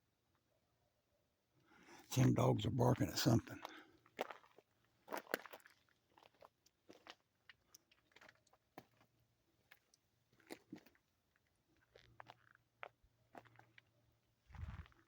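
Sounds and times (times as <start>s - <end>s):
faint crunches and clicks: 3.6s - 9.1s.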